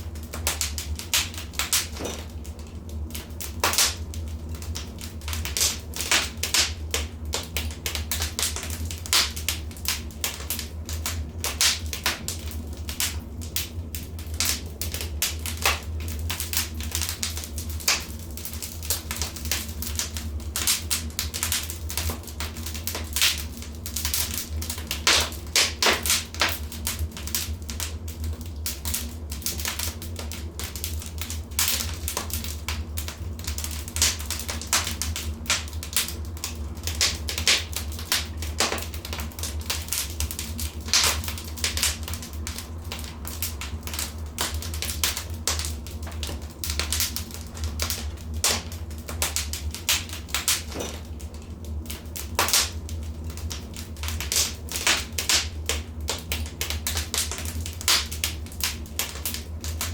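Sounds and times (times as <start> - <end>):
wood fire crackling and popping: 0.0 - 59.9
steady low rumble: 58.4 - 59.9.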